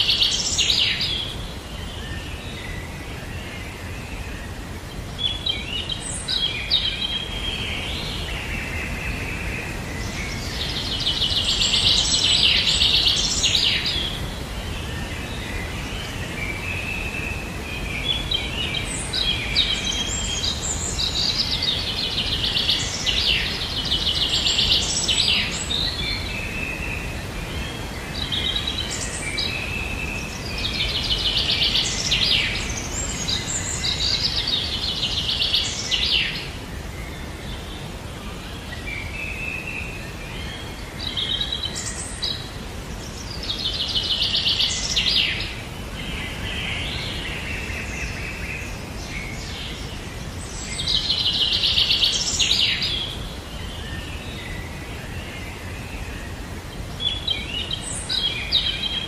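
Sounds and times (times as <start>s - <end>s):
birds singing and calling: 0.0s - 59.0s.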